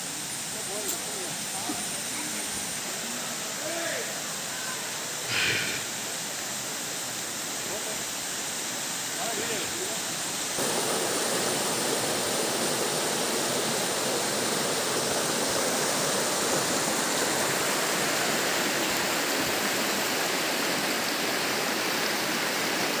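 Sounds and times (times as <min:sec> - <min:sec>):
waterfall crashing onto rock: 0:05.2 - 0:23.0.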